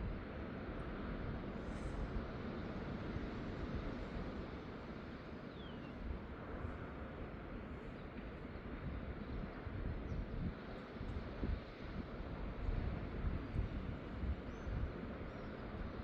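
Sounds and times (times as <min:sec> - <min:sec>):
sea noise from shore: 0:00.0 - 0:16.0
wind gusting on microphone: 0:08.6 - 0:16.0.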